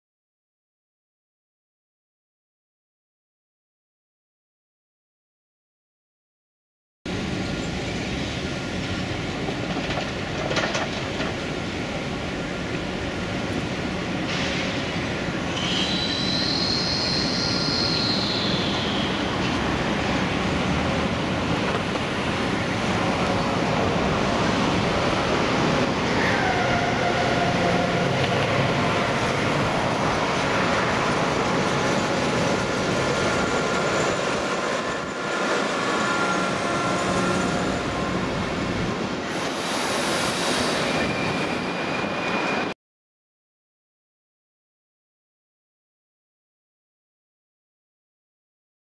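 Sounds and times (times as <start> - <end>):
train wheel-on-rail noise: 7.1 - 42.8
high wheel squeal: 15.5 - 19.4, 39.4 - 42.7.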